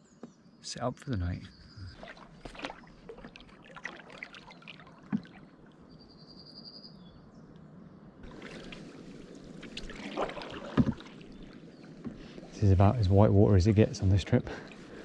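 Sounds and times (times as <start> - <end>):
paddle splashing and dripping: 1.6 - 6.1, 8.2 - 13.3, 14.4 - 15.0
paddle knock: 5.0 - 5.4, 9.7 - 11.2, 12.0 - 12.4.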